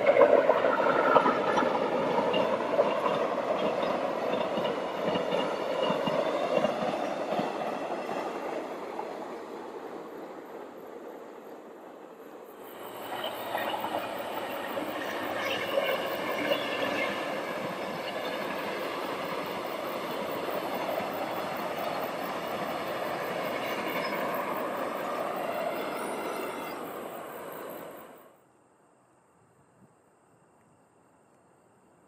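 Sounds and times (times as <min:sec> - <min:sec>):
train wheels rushing on rails: 0:00.0 - 0:28.3.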